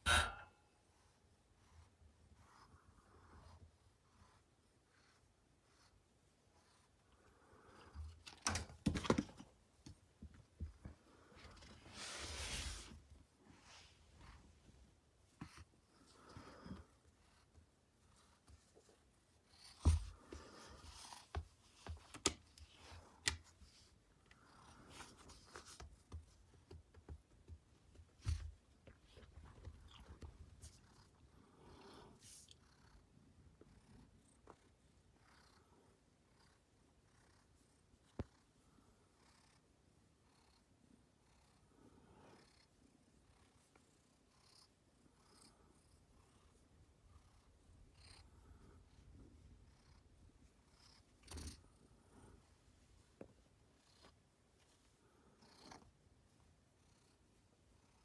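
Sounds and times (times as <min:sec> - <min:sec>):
soft scratching and rustling: 0:09.5 - 0:35.1, 0:41.6 - 0:58.0
cat purring: 0:29.0 - 0:58.0.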